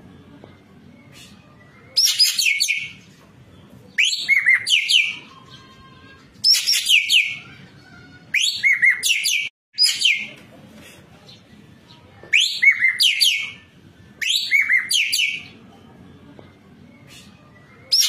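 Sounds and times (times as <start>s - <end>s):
bird whistling and chattering: 1.1s - 3.0s, 4.0s - 5.3s, 6.4s - 7.5s, 8.3s - 10.3s, 12.3s - 13.6s, 14.2s - 15.6s, 17.0s - 18.0s.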